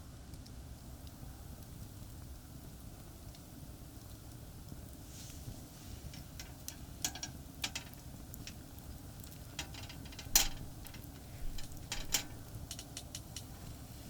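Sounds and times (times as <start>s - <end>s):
sharp clicks and snaps: 9.2s - 13.5s.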